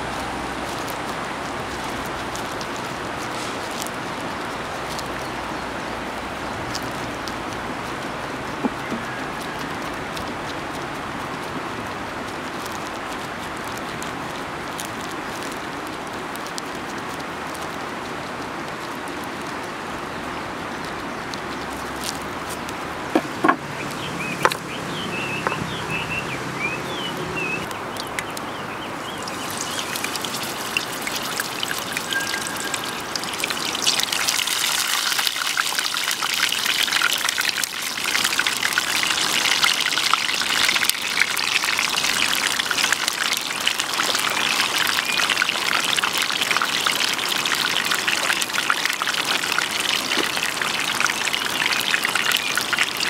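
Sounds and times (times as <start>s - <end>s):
food sizzling in hot oil: 3.2s - 4.0s, 29.0s - 53.0s.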